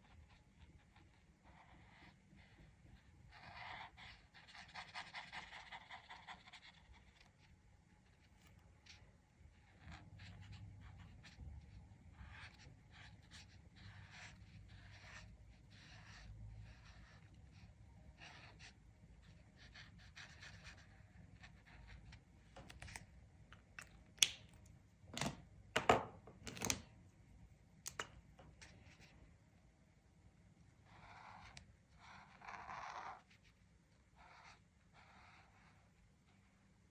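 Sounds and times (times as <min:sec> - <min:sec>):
colouring strokes on paper: 0:00.0 - 0:22.3, 0:30.8 - 0:36.9.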